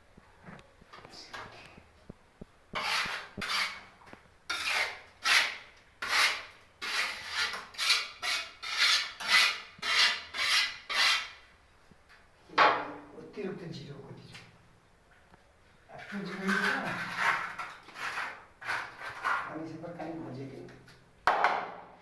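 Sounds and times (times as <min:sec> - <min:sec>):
hand tool scraping hard surface: 0:02.8 - 0:03.9, 0:04.5 - 0:11.4, 0:16.0 - 0:19.5.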